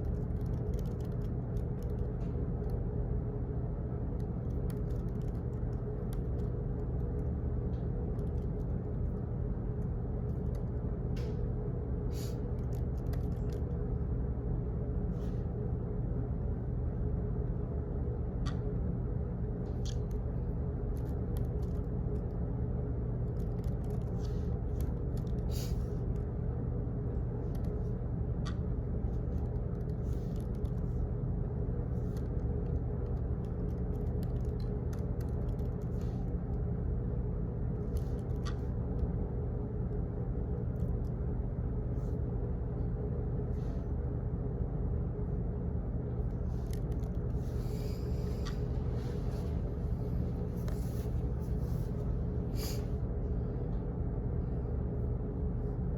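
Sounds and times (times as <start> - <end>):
light clicks and taps: 0.0 - 2.8, 4.1 - 9.2
office rumble and hum: 0.0 - 55.9.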